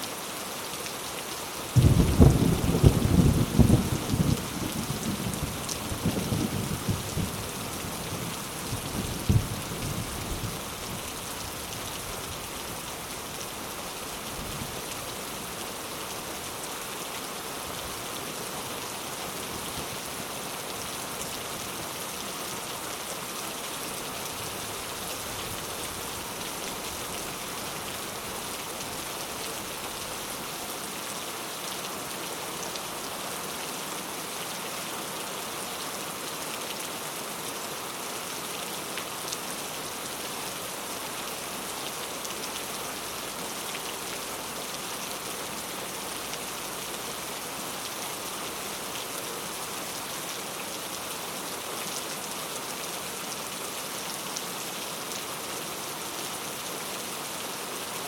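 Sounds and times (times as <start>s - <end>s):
heavy rain falling: 0.0s - 58.0s
thunder rumble: 1.8s - 4.9s.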